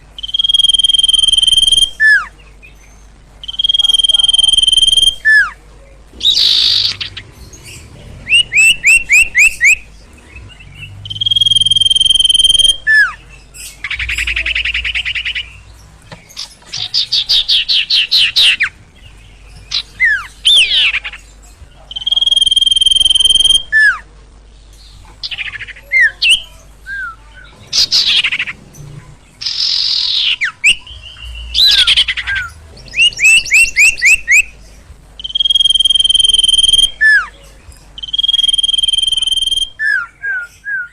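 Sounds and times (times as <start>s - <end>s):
songbird singing whistles and trills: 0.2s - 5.6s, 6.2s - 24.1s, 24.8s - 28.6s, 29.4s - 34.6s, 35.2s - 40.9s.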